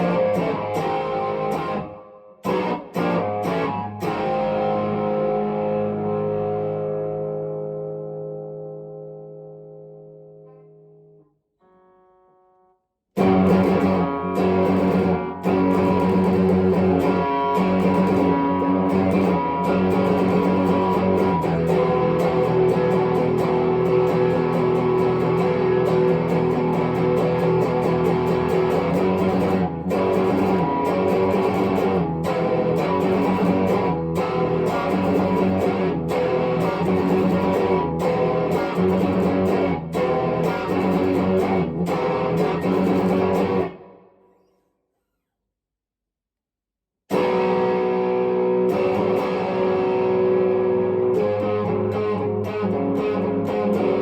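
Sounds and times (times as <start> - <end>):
electric guitar strummed chords: 0.0 - 12.6, 13.2 - 44.0, 47.1 - 54.0
quiet electric guitar phrase: 2.5 - 39.5.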